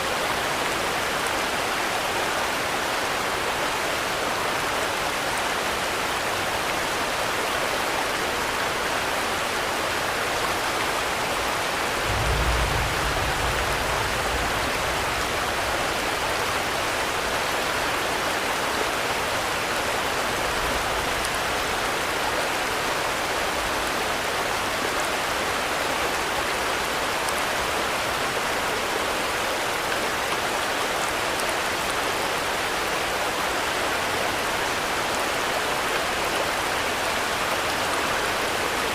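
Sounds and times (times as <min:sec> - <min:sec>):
steady rain falling: 0:00.0 - 0:38.9
low rumble: 0:12.0 - 0:16.2.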